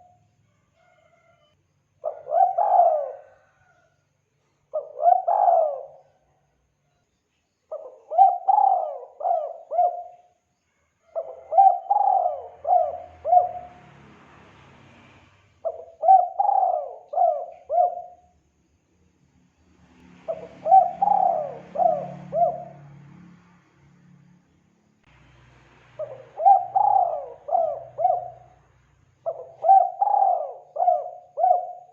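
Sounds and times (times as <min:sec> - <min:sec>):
dove cooing: 0:02.0 - 0:03.8, 0:04.7 - 0:06.2, 0:07.7 - 0:10.3, 0:11.1 - 0:13.8, 0:15.6 - 0:18.3, 0:20.3 - 0:23.0, 0:26.0 - 0:28.6, 0:29.2 - 0:31.9.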